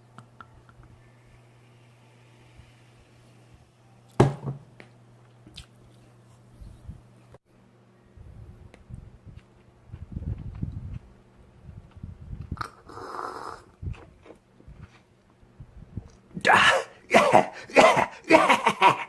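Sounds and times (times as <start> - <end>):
soft chewing: 4.9 - 6.6, 8.7 - 12.6, 13.8 - 15.4.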